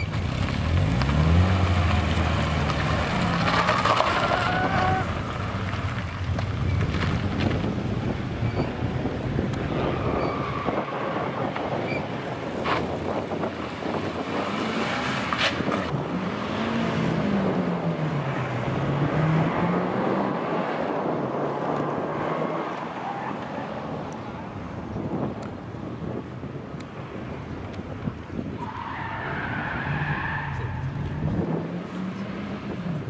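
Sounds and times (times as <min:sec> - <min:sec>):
car engine revving: 0:00.0 - 0:08.0, 0:12.8 - 0:22.8
wind buffeting microphone: 0:02.8 - 0:16.3, 0:23.8 - 0:33.0.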